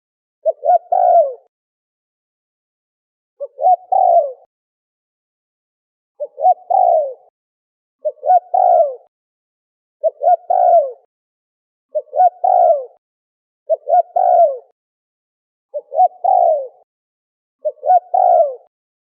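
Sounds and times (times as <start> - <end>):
turtle dove cooing: 0.4 - 1.5, 3.4 - 4.5, 6.2 - 7.3, 8.0 - 9.1, 10.0 - 11.1, 11.9 - 13.0, 13.7 - 14.8, 15.7 - 16.9, 17.6 - 18.7.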